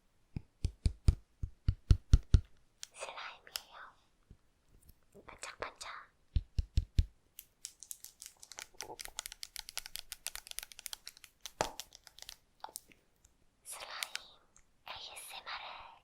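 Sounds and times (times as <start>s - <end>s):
soft low thumps: 0.4s - 2.5s
small crackling pops: 6.5s - 13.4s.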